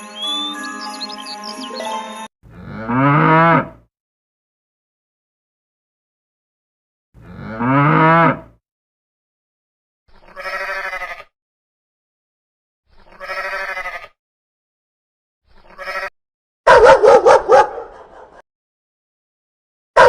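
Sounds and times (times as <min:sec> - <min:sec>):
goat bleating: 0:10.2 - 0:11.3, 0:13.0 - 0:14.2, 0:15.6 - 0:16.1
dog barking: 0:16.6 - 0:18.4.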